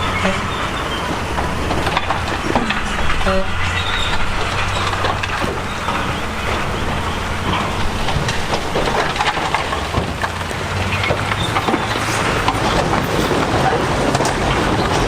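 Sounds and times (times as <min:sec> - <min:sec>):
heavy diesel machinery running: 0:00.0 - 0:15.0
steel tracks clanking: 0:00.0 - 0:15.0.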